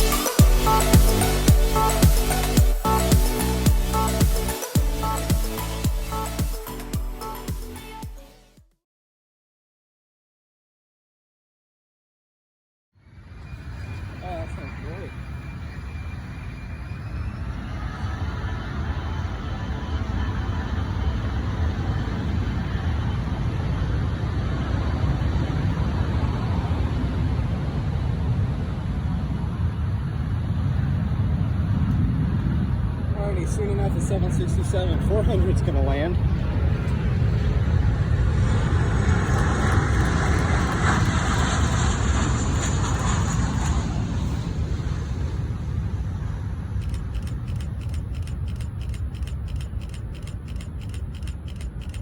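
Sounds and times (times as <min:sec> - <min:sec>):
faint engine whine: 0:13.1 - 0:52.0
jet engines rumbling: 0:13.2 - 0:52.0.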